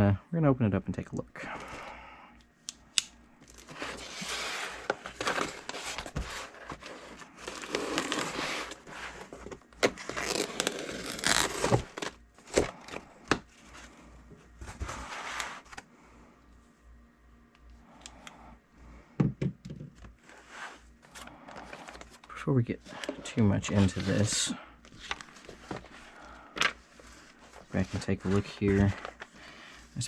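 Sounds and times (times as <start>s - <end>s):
packaging tearing and crinkling: 7.3s - 8.9s, 9.8s - 12.9s.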